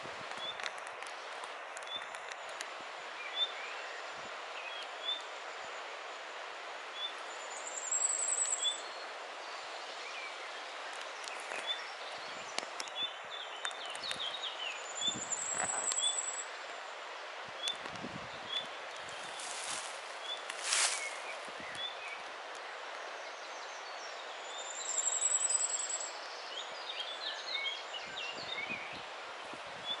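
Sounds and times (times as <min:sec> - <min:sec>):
steady background hiss: 0:00.0 - 0:30.0
small birds chirping: 0:07.0 - 0:16.5, 0:17.6 - 0:30.0.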